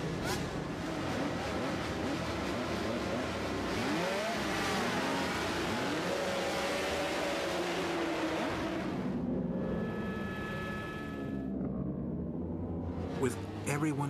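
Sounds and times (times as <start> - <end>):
racing motorcycles at high revs: 0.0 - 9.2.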